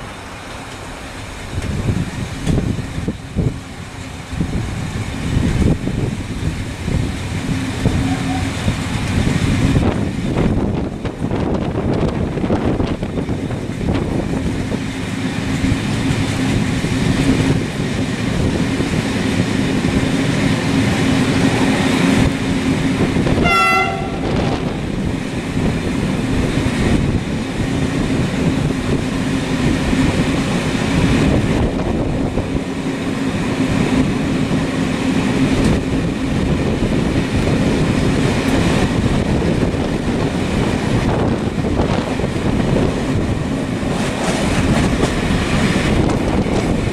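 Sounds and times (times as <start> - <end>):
moving train rumble: 0.0 - 46.9
pitched horn-like tone: 7.9 - 8.7, 23.4 - 24.6.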